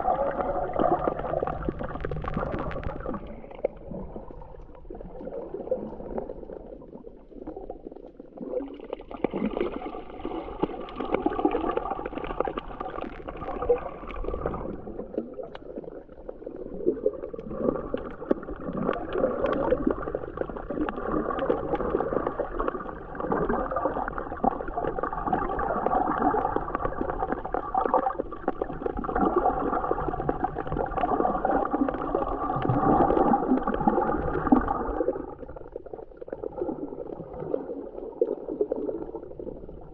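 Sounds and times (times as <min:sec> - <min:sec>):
underwater gurgling and bubbles: 0:00.0 - 0:39.9.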